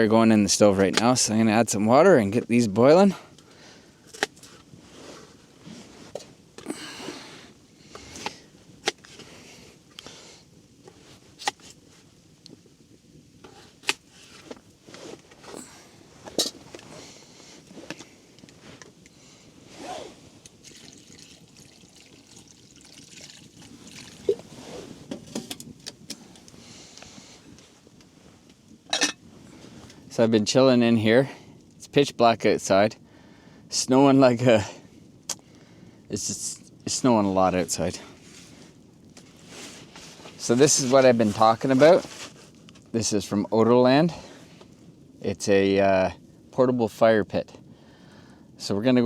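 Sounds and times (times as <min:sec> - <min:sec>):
water pouring into pot: 0:20.6 - 0:24.5.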